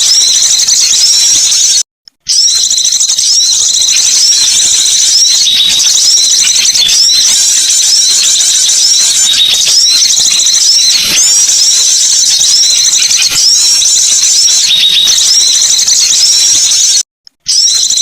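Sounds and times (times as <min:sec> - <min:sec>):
swooping bird chirp: 0:00.0 - 0:18.0
songbirds chattering: 0:02.6 - 0:17.0.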